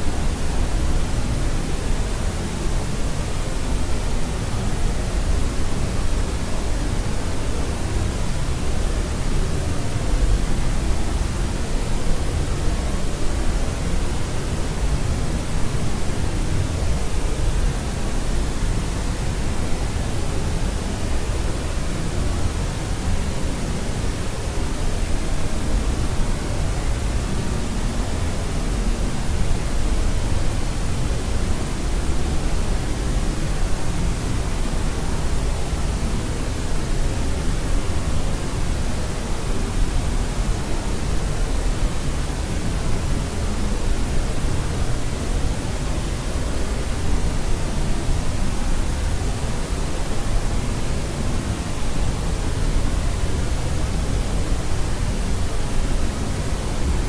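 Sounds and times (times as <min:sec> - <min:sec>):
white noise hiss: 0:00.0 - 0:57.0.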